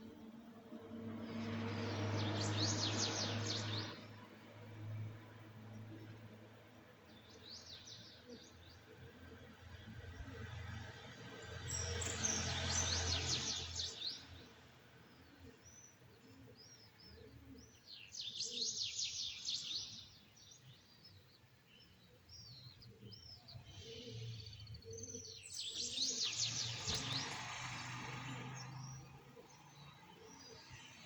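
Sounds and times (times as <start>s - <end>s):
bird chirps: 15.3s - 27.4s.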